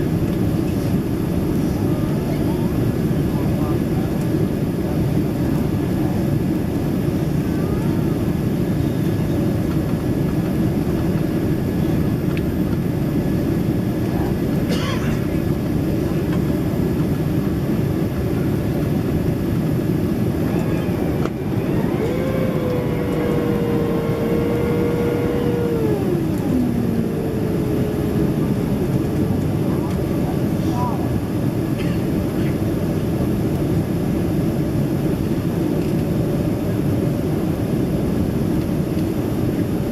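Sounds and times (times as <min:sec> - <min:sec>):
airplane cabin engine rush: 0:00.0 - 0:39.9
held tone sliding down: 0:20.4 - 0:29.2.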